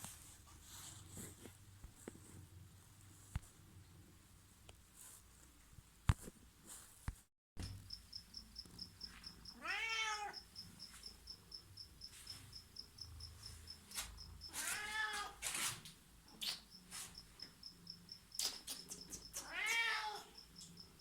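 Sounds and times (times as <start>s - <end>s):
cat meowing: 9.5s - 10.4s, 14.5s - 15.4s, 19.4s - 20.3s.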